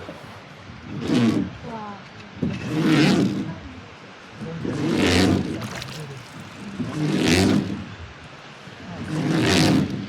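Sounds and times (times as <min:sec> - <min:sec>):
oars pulling through water: 0:00.0 - 0:01.7, 0:04.3 - 0:10.0.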